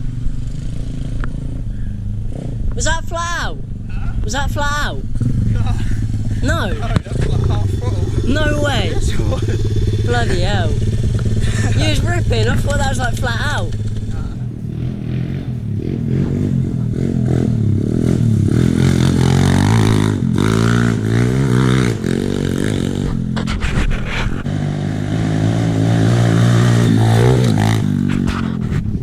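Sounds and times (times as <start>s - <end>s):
pit bike engine revving: 4.0s - 29.0s
sharp knocks and rattles: 5.1s - 14.5s.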